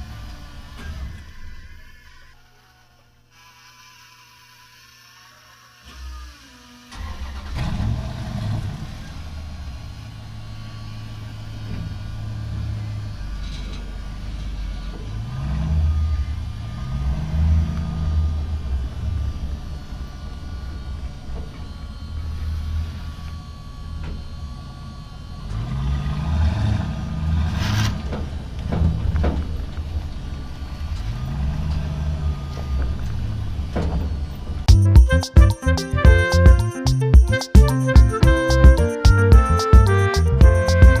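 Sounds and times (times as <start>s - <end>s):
engine starting and revving: 5.9s - 34.7s.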